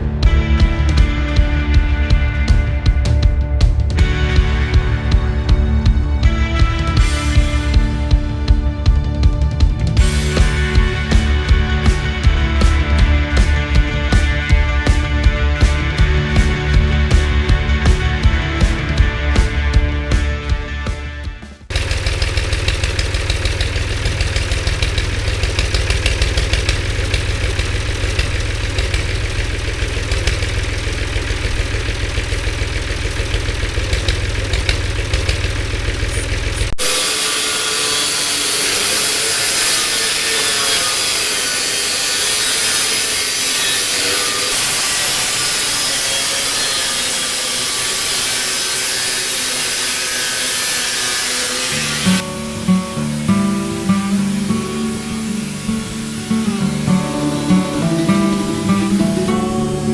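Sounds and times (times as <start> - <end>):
buzzing crackling metal tool: 21.7 - 59.9
bright high hissing: 51.0 - 59.9.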